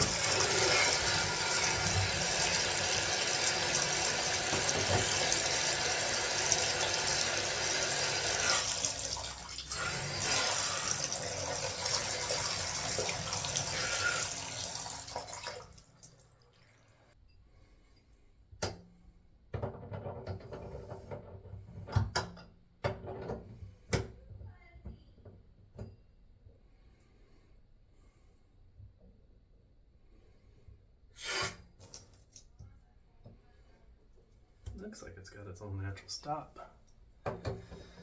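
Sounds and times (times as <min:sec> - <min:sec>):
water running from bathtub faucet: 0:00.0 - 0:16.9.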